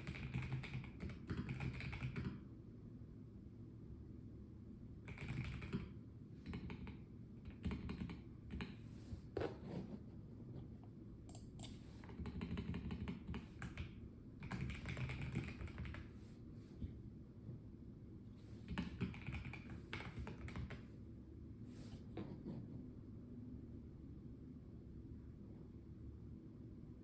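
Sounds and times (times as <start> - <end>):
mechanical keyboard typing: 0.0 - 2.4, 5.1 - 8.7, 11.3 - 16.0, 18.7 - 20.8
steady low hum: 0.0 - 27.0.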